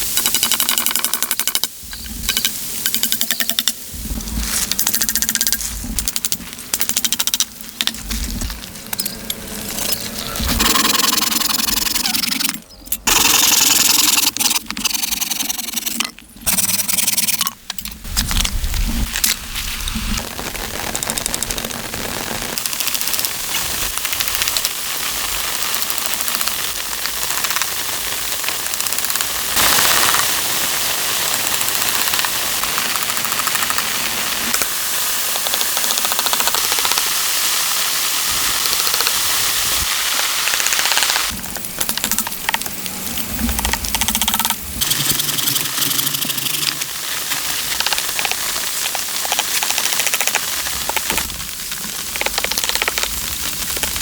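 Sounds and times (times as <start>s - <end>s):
heavy rain hissing: 0.0s - 14.4s, 18.0s - 35.4s, 37.0s - 54.0s
choppy mixed noise: 2.0s - 17.5s.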